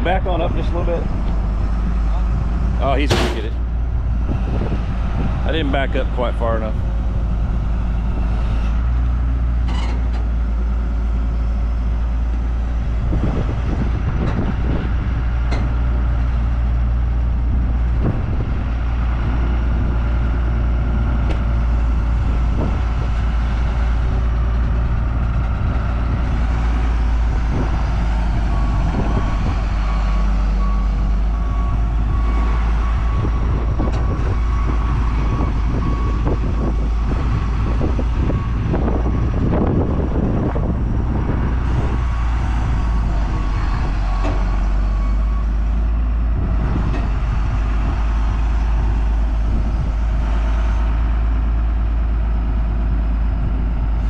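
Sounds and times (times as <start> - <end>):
knocks and clanks: 3.0 - 3.7.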